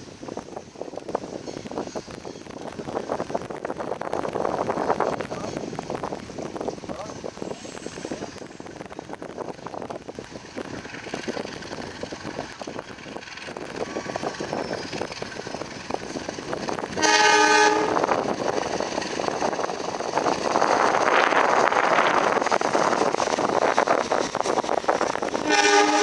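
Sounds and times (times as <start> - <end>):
train wheels clicking over rails: 0.0 - 26.0
short train horn blast: 17.0 - 18.1, 25.4 - 26.0.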